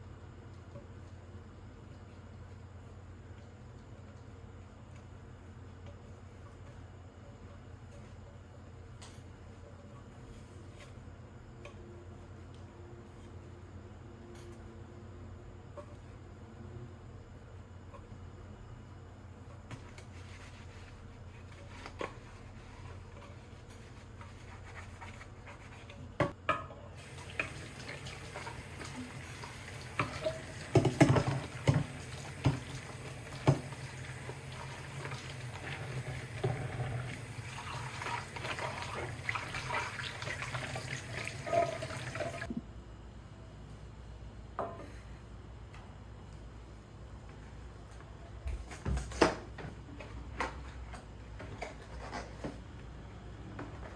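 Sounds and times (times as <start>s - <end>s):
water running from tap: 27.0s - 42.5s.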